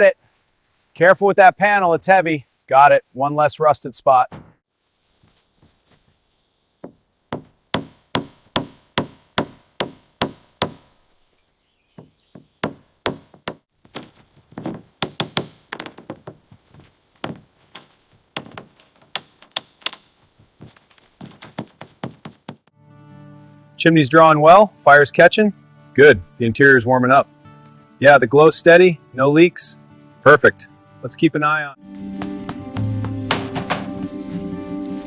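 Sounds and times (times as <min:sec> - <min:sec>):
sharp knocks on wood: 0:06.8 - 0:10.9, 0:12.0 - 0:16.6, 0:17.2 - 0:20.0, 0:20.6 - 0:22.7, 0:32.2 - 0:34.0.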